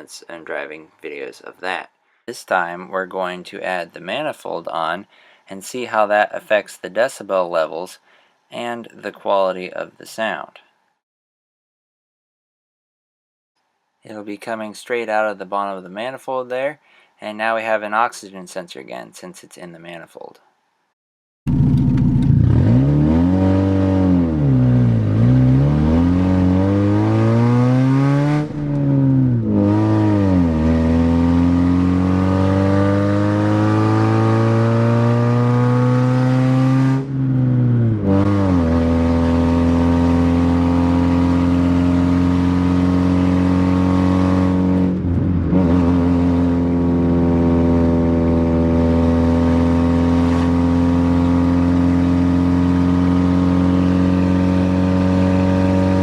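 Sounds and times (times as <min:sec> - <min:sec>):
car engine revving open exhaust: 0:21.5 - 0:56.0.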